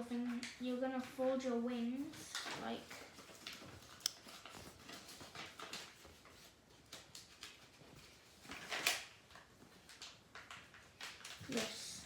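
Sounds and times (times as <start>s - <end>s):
paper rustling and crinkling: 0.1s - 12.0s.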